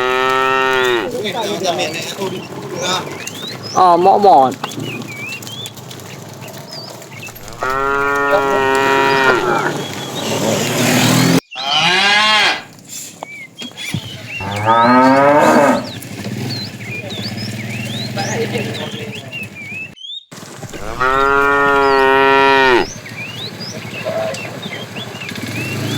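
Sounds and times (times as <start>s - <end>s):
cattle mooing: 0.0s - 4.6s, 7.3s - 12.7s, 14.4s - 16.0s, 20.7s - 23.0s.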